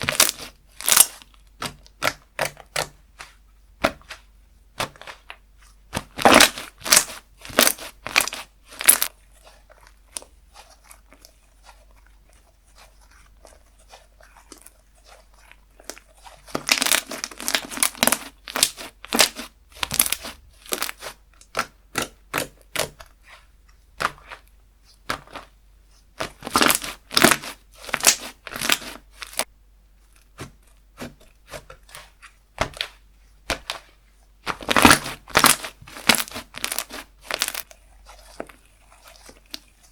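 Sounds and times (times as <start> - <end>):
slime squeezed crackling and popping: 0.0 - 3.0, 6.0 - 9.1, 15.4 - 23.0, 26.2 - 29.5, 34.4 - 39.7.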